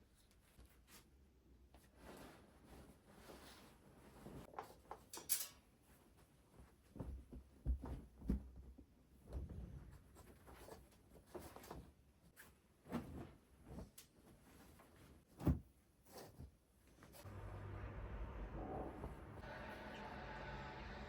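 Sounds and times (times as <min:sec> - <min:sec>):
soft knocks and rustles: 0:05.9 - 0:12.0.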